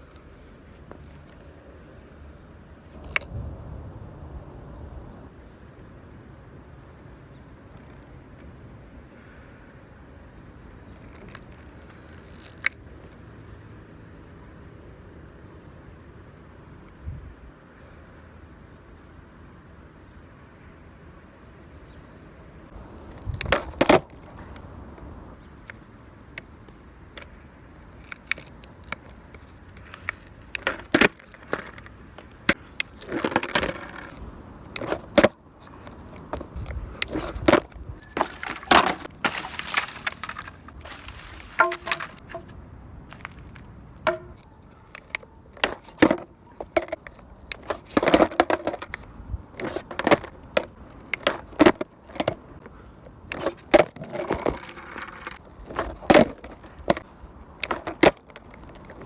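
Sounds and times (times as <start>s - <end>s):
skateboard rolling: 0.0s - 5.6s, 22.7s - 59.0s
skateboard clacks and impacts: 22.7s - 25.4s, 30.5s - 42.6s, 43.2s - 49.0s, 49.6s - 52.6s, 53.3s - 59.0s.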